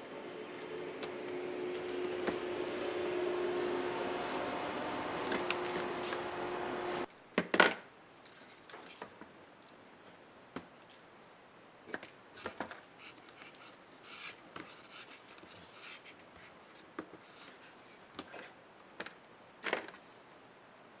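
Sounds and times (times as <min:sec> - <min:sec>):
low hum: 0:00.0 - 0:07.1.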